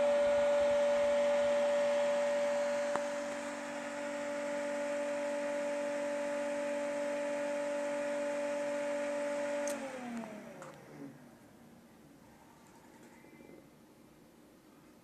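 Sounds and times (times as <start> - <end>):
electric fan motor humming: 0.0 - 11.5.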